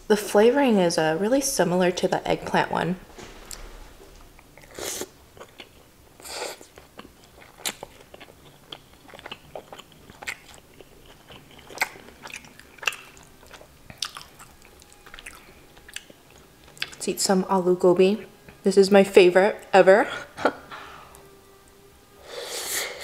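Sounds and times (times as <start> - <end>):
chewing with mouth clicks: 5.4 - 17.0.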